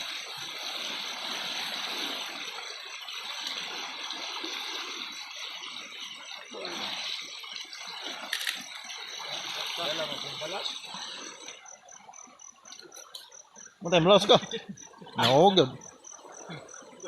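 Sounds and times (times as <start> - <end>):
river water rushing: 0.0 - 11.7.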